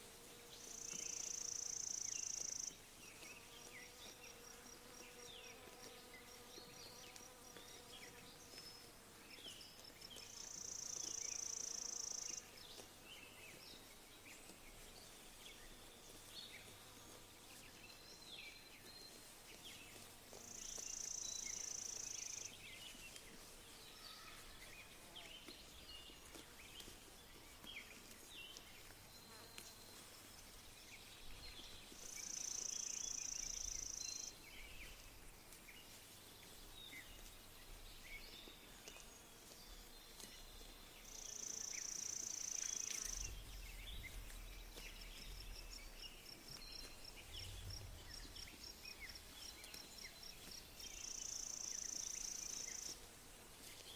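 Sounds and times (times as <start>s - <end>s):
small bird chirps: 41.0s - 53.0s.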